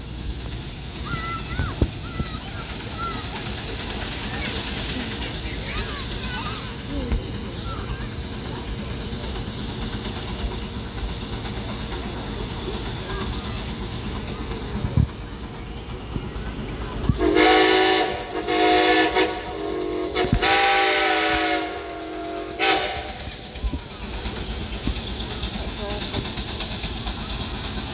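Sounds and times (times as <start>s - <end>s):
steam engine whistle blasts: 17.2s - 23.2s.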